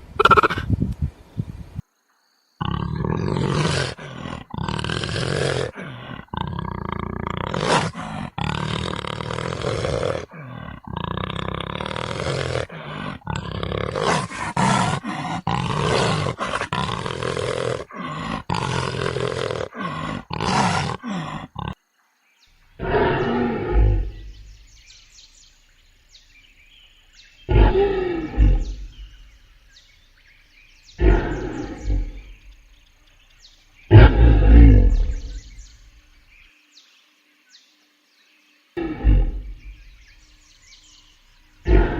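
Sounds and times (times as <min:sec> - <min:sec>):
big cats roaring and growling: 0:02.6 - 0:21.8, 0:22.8 - 0:24.8, 0:27.4 - 0:29.4, 0:31.0 - 0:32.6, 0:33.9 - 0:35.8, 0:38.8 - 0:40.0, 0:41.6 - 0:41.9.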